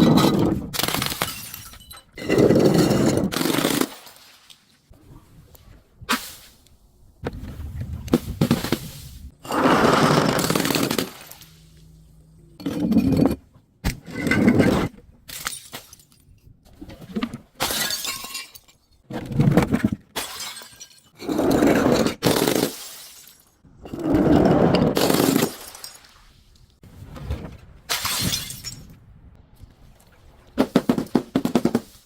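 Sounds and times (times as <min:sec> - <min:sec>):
glass crushing and breaking: 0:00.0 - 0:04.2, 0:15.3 - 0:16.4, 0:17.6 - 0:19.0, 0:20.1 - 0:21.2, 0:25.0 - 0:26.1, 0:27.9 - 0:28.9.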